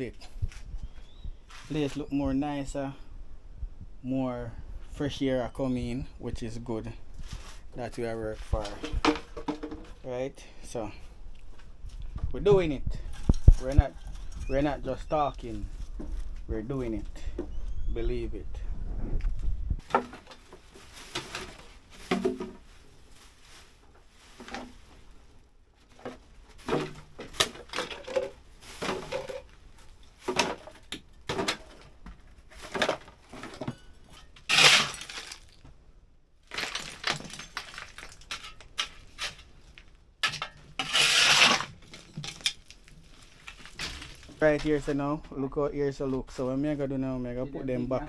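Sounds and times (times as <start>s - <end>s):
junk knocking and clattering: 8.6s - 10.0s.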